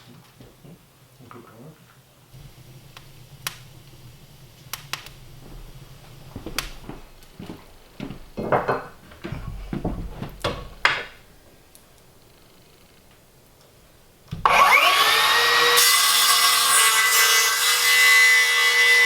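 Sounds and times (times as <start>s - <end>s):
objects knocking and rubbing: 2.4s - 13.3s.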